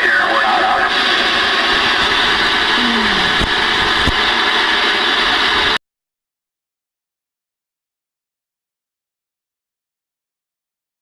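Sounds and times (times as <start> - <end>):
radio static hiss: 0.0 - 5.8.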